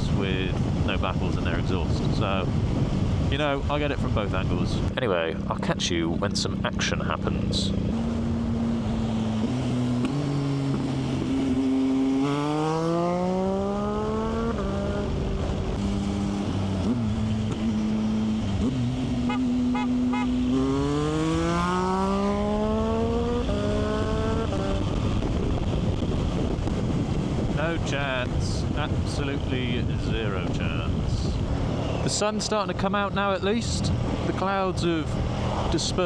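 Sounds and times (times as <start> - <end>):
motorcycle engine accelerating: 5.4 - 32.4.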